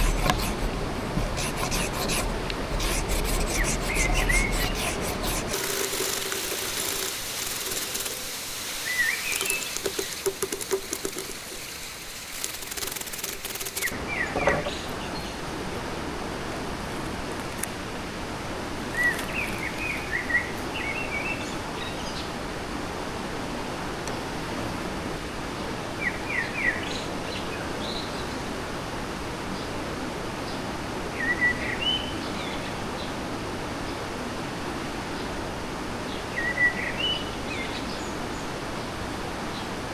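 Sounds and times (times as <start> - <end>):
small bird chirping: 3.3 - 14.3
bright hiss with crackles: 5.5 - 13.9.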